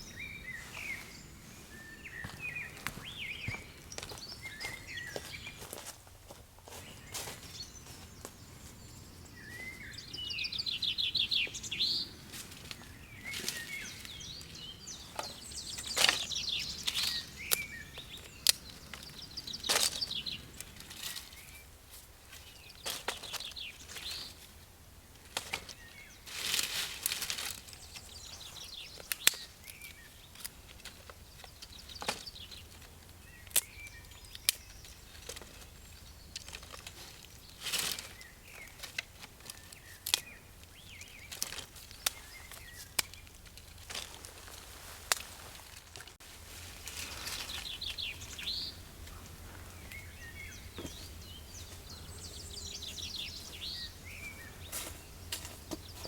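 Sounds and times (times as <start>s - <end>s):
small birds chirping: 0.0s - 56.0s
sharp snaps and knocks: 28.8s - 46.2s.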